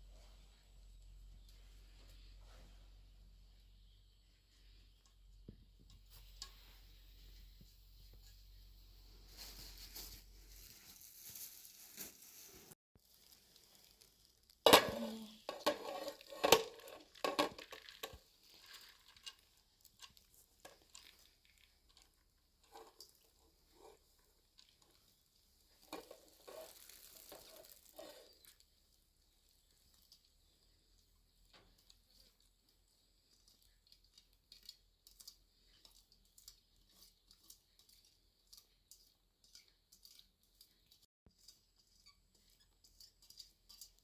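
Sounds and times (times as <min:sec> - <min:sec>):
faint sizzling in a pan: 0:06.0 - 0:16.5, 0:18.0 - 0:34.7
light knocks and stirring: 0:14.7 - 0:44.0
utensil scraping against pot: 0:15.0 - 0:21.4, 0:22.6 - 0:28.6, 0:33.2 - 0:44.0.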